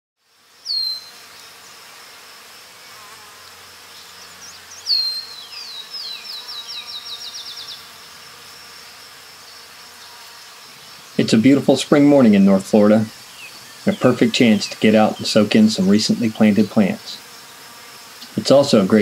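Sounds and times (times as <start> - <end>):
high insect drone: 0.2 - 19.0
songbird whistles and trill: 0.7 - 1.1, 4.7 - 7.8.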